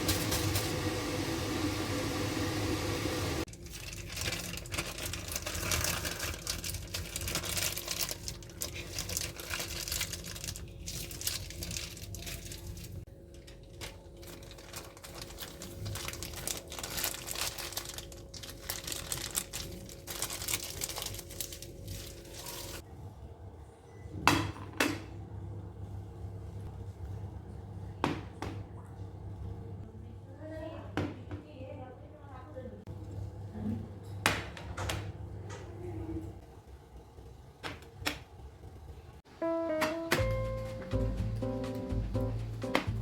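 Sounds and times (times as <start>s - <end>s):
faint appliance hum: 0.0s - 43.0s
plastic packaging crinkling: 3.5s - 22.8s.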